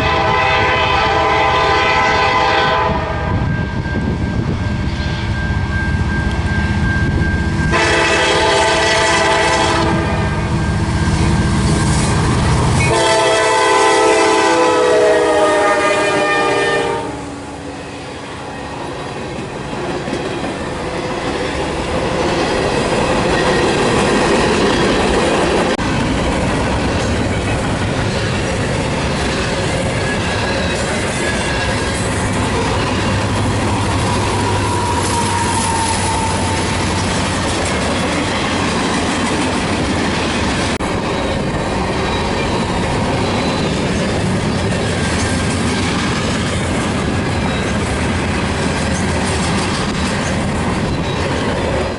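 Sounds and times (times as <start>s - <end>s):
train wheels rumbling over rail joints: 0.0s - 51.9s
wheel squeal: 29.2s - 37.1s, 41.0s - 45.4s, 47.4s - 47.9s, 48.9s - 51.8s.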